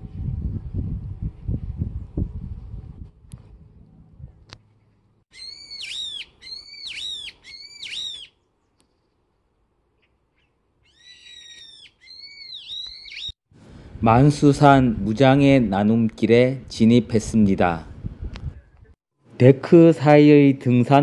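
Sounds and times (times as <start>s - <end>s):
bird calling: 4.6s - 9.2s, 10.0s - 13.4s.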